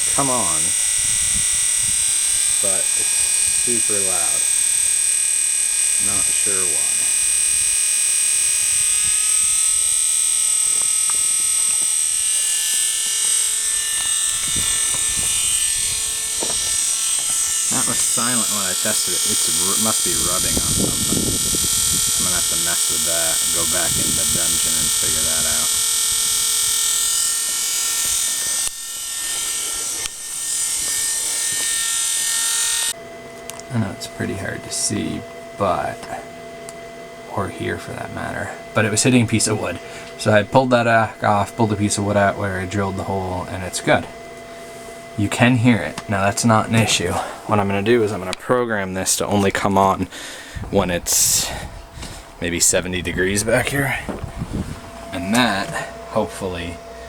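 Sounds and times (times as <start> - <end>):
fan buzzing: 0.0 - 57.0
fan blades hitting wood: 13.8 - 31.8, 43.7 - 56.7.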